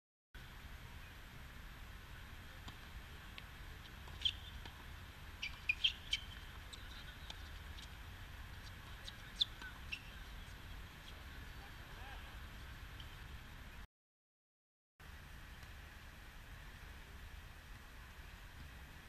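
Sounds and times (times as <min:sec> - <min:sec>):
low outdoor rumble: 0:00.4 - 0:13.8, 0:15.0 - 0:19.0
birds chirping: 0:04.0 - 0:04.7, 0:05.4 - 0:08.0, 0:08.6 - 0:12.3.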